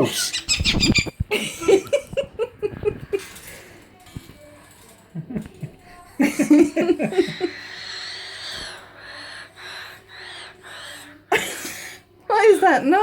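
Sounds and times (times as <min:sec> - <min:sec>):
pet bird calling: 0:00.0 - 0:01.2.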